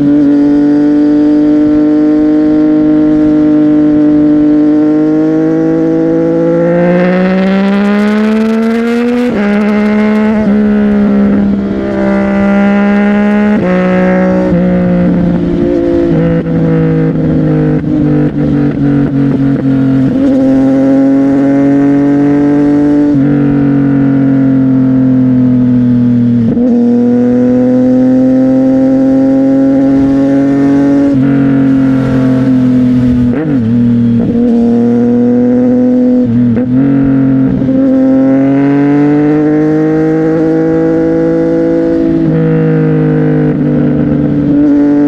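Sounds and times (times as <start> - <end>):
motorcycle engine while riding: 0.0 - 45.0.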